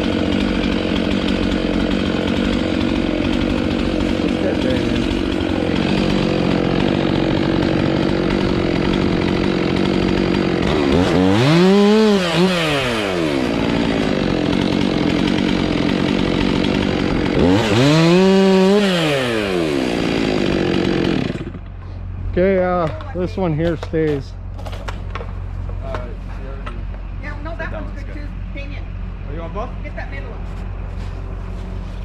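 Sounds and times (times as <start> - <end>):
chainsaw revving: 0.0 - 21.8
engine running steadily: 0.0 - 32.0.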